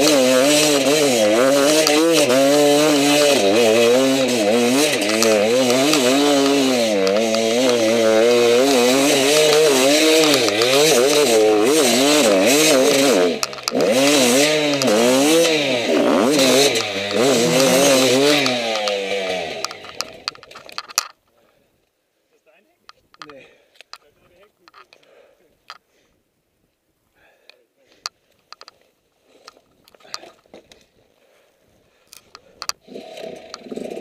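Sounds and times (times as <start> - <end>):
motorcycle engine revving: 0.0 - 21.1, 32.8 - 34.0.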